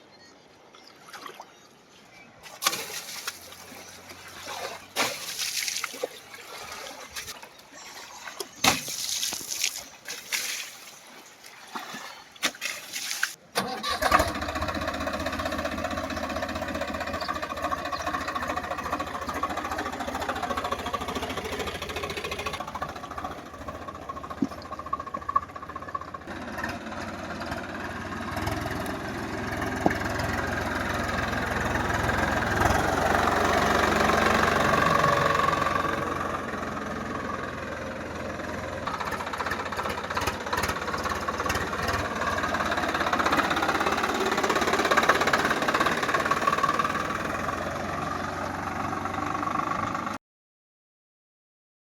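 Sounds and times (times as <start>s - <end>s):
diesel tractor engine running: 13.6s - 50.2s.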